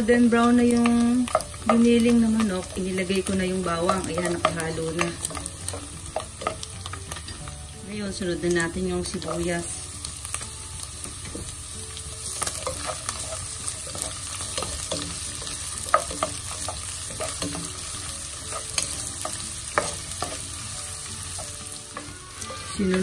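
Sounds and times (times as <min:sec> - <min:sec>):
food sizzling in a frying pan: 0:00.0 - 0:23.0
spatula scraping and knocking pan: 0:00.7 - 0:07.5, 0:12.2 - 0:23.0.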